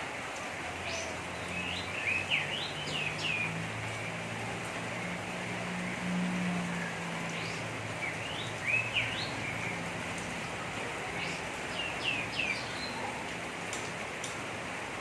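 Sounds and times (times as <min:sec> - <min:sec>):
bird chirping: 0:00.9 - 0:03.6, 0:07.4 - 0:09.8.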